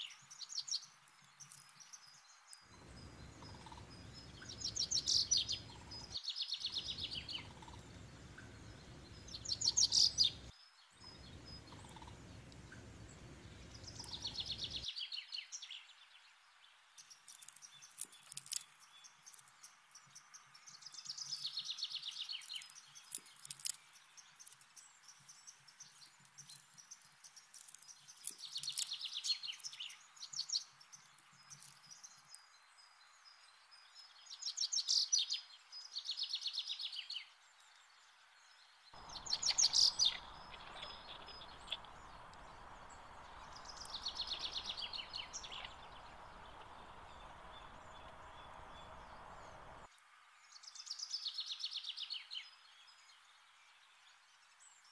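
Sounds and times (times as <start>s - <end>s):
steady hiss: 2.8s - 6.2s, 6.8s - 14.8s, 39.0s - 49.9s
songbird trilling: 2.8s - 14.8s, 39.0s - 49.9s.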